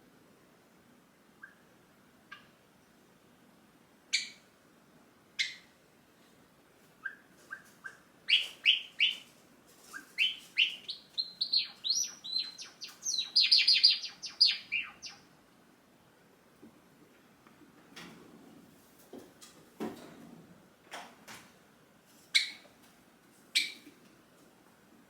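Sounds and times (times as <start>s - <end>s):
sparrow chattering song: 5.4s - 5.6s, 7.0s - 9.2s, 10.0s - 15.2s
sparrow calling: 5.4s - 5.7s, 7.0s - 9.3s, 9.9s - 15.3s, 22.3s - 22.6s, 23.6s - 23.8s.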